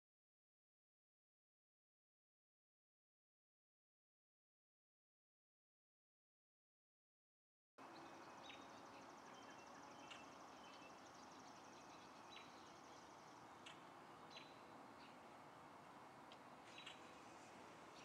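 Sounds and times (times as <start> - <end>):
steady low hiss: 7.8 - 18.0.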